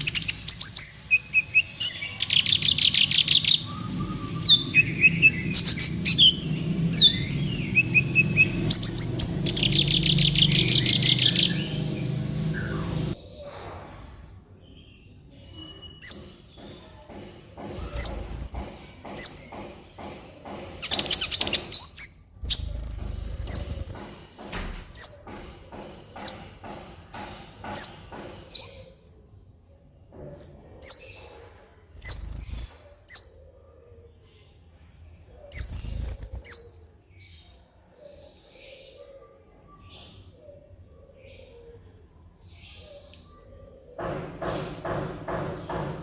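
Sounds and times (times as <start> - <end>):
high bird trill: 0.0 - 13.1, 17.8 - 19.6, 20.8 - 24.0, 32.0 - 33.6, 35.6 - 37.0
sunbird chirping: 0.0 - 13.2, 17.8 - 18.6, 20.8 - 24.0, 32.0 - 33.5, 35.6 - 36.9.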